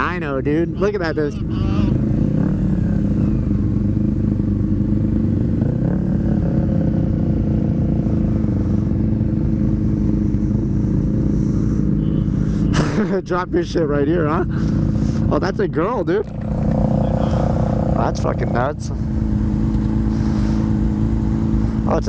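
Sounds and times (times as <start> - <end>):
motorcycle engine running steadily: 0.0 - 22.0.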